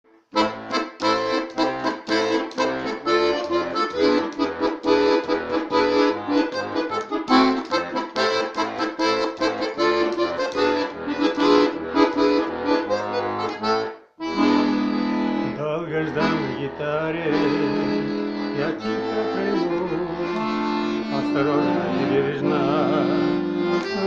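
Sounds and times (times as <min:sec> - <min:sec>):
accordion playing: 0:00.1 - 0:24.0.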